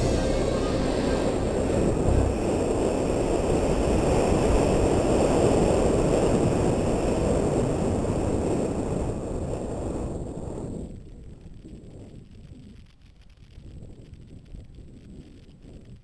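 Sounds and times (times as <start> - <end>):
wind buffeting microphone: 0.8 - 12.8
mountain bike ride rumble: 1.8 - 16.0.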